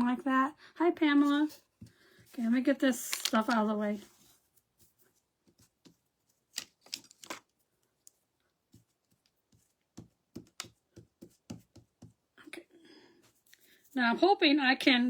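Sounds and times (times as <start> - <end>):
craft supplies clicking on table: 6.6 - 7.5.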